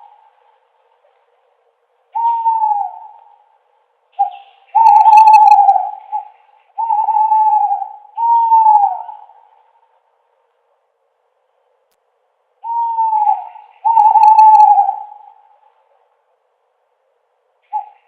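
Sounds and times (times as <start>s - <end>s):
owl hooting: 0.0s - 1.2s, 2.1s - 9.8s, 12.6s - 15.9s, 17.6s - 18.0s.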